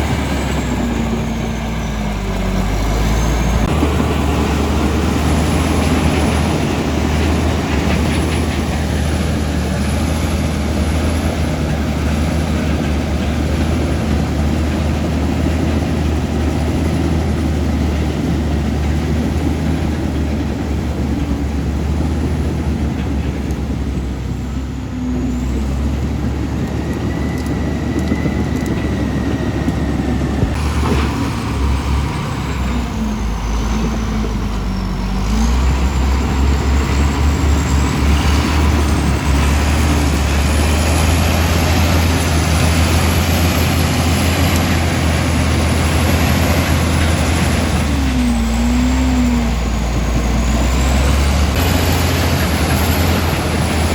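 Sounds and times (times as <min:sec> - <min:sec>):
bulldozer diesel engine running: 0:00.0 - 0:53.9.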